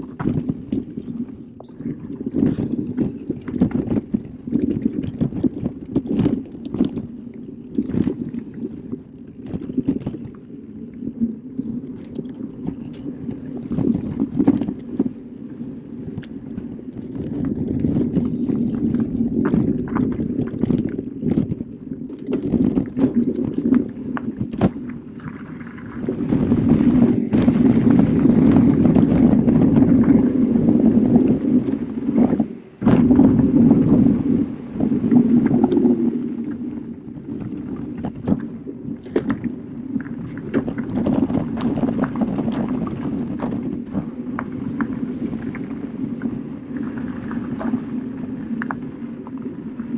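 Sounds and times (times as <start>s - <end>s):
bike rattles and knocks: 0.0s - 8.4s, 16.1s - 30.2s
bike tyres rolling on dirt: 0.0s - 49.9s.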